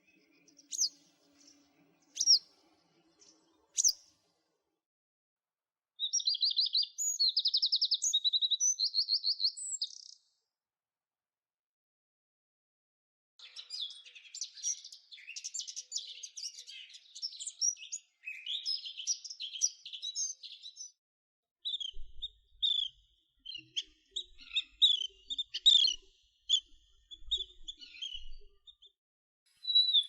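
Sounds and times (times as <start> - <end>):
songbird warbling: 2.2 - 2.4.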